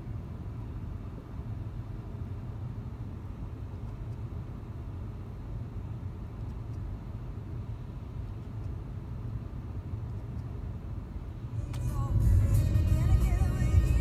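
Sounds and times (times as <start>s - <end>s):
car engine idling: 11.4s - 14.0s.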